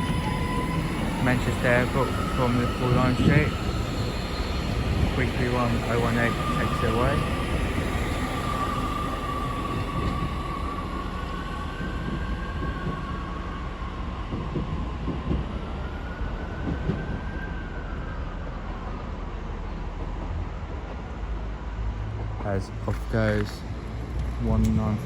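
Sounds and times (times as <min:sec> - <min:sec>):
electric train traction whine: 0:00.0 - 0:17.0
train rumble: 0:00.0 - 0:25.0.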